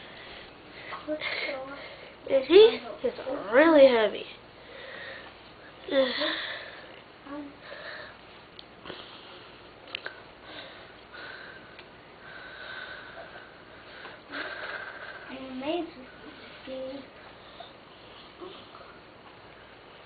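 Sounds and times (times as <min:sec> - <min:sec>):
sniffing and breathing: 0:10.4 - 0:15.4.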